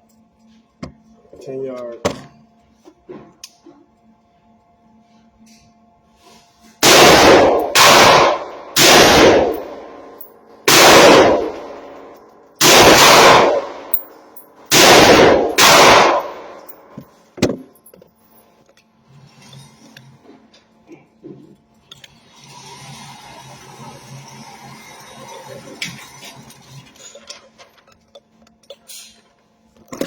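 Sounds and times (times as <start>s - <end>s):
gunshots with long echo: 6.8s - 10.0s, 10.7s - 11.9s, 12.6s - 13.9s, 14.7s - 16.7s.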